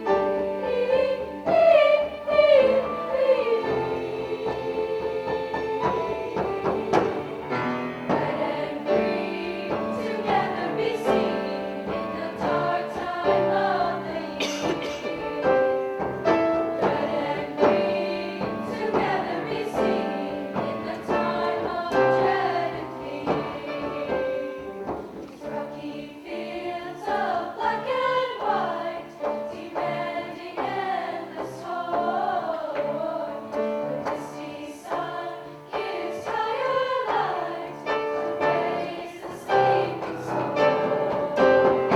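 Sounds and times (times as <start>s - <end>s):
choir singing in harmony: 0.0s - 41.9s.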